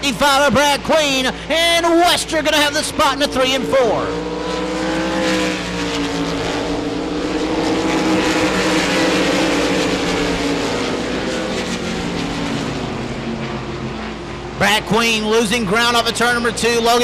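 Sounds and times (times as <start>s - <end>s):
race car engines droning: 0.0s - 17.0s.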